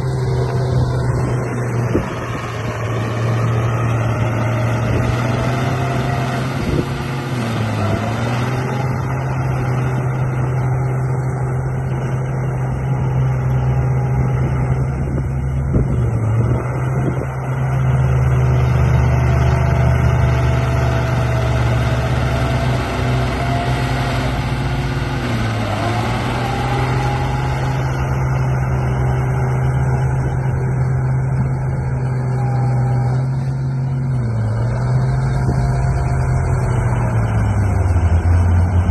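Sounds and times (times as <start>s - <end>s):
model bulldozer motor whining: 0.0s - 38.9s.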